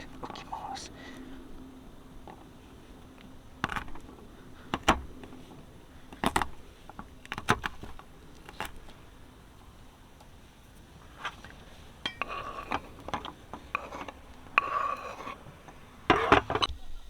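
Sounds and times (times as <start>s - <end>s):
faint steady hum: 0.0s - 17.0s
cookware knocks and clinks: 12.0s - 12.7s.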